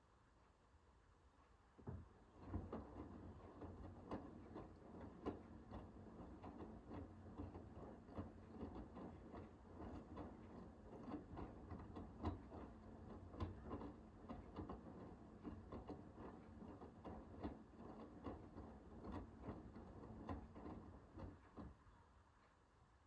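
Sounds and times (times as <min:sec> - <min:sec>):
washing machine motor hum: 0:01.7 - 0:22.3.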